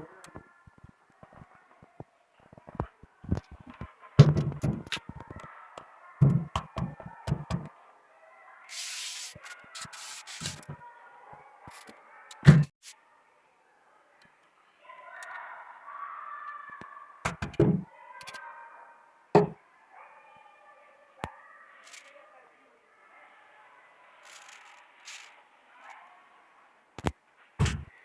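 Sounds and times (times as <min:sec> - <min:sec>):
short hissing burst: 0:08.7 - 0:09.4
sharp knocks: 0:19.4 - 0:19.6.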